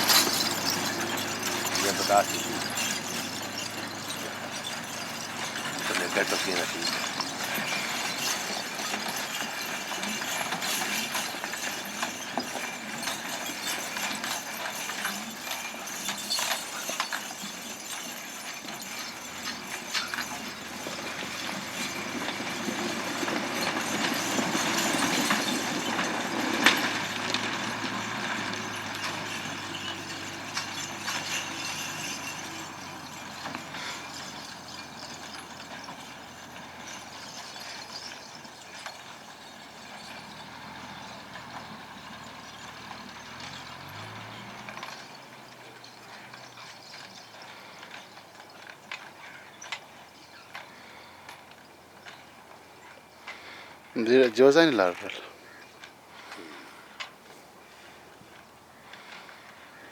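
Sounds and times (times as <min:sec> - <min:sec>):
vehicle passing: 0:00.0 - 0:11.8, 0:19.1 - 0:37.2, 0:39.3 - 0:46.7
clicks and rattles: 0:00.0 - 0:52.6.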